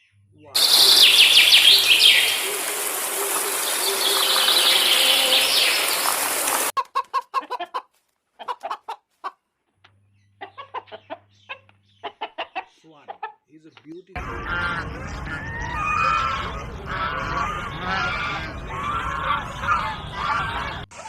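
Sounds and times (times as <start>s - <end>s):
birds chirping: 0.0s - 6.7s, 9.9s - 20.9s
chicken clucking: 6.8s - 9.4s, 10.3s - 13.4s.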